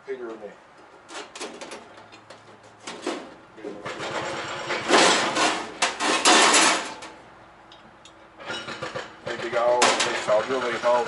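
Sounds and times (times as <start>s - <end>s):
metal rattling and scraping: 1.0s - 7.2s, 8.4s - 11.0s.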